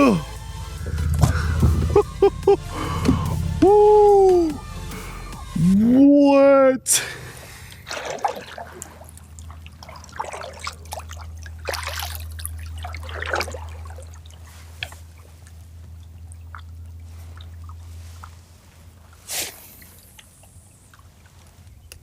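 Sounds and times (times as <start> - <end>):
steady low hum: 0.0 - 22.0
water splashing beside a kayak: 7.2 - 22.0.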